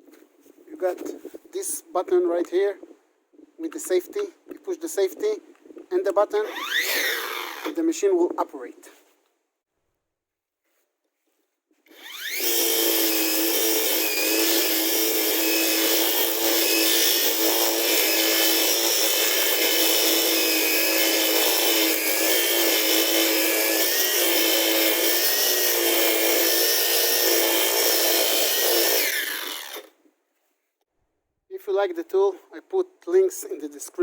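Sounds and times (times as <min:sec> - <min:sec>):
electric grass trimmer whine: 0:06.4 - 0:07.8, 0:11.9 - 0:29.9.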